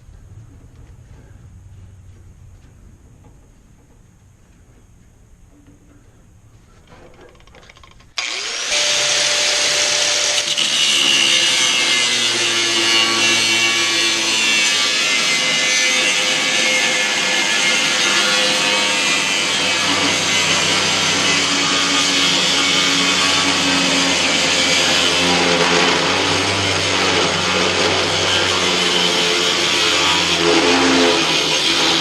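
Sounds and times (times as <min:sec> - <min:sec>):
power tool cutting metal: 0:08.2 - 0:32.0.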